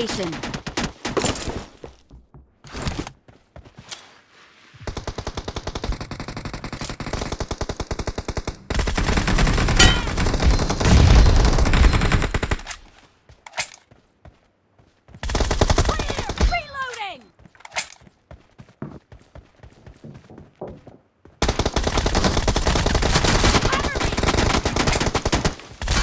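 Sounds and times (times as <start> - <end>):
video game automatic gunfire: 21.4 - 26.0.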